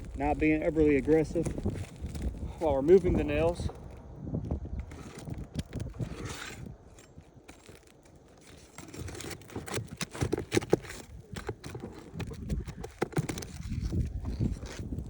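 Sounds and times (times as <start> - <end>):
shingle crackling: 0.0 - 15.0
pry bar scraping and clicking: 4.7 - 15.0.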